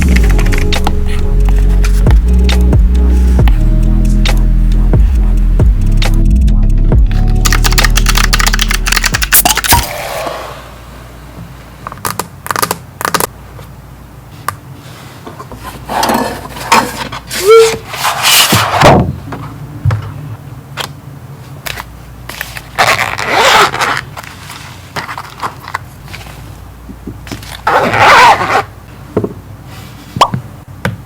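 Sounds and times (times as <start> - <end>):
stylus scratching on screen: 0.0 - 6.2.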